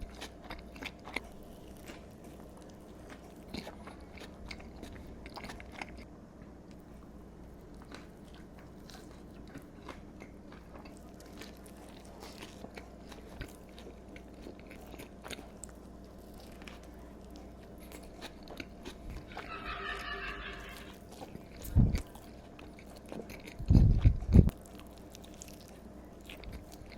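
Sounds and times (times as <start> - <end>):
person chewing food: 0.0 - 6.1, 6.7 - 26.9
short squeaky pitched sound: 19.3 - 21.0.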